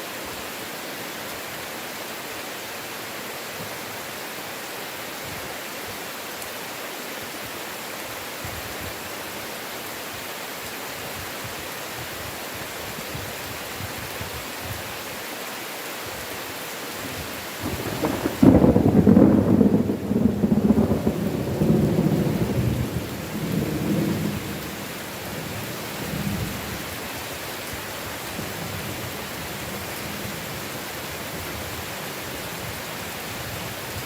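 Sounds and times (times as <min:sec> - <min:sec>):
heavy rain falling: 0:00.0 - 0:34.0
low rumble of thunder: 0:17.6 - 0:26.8.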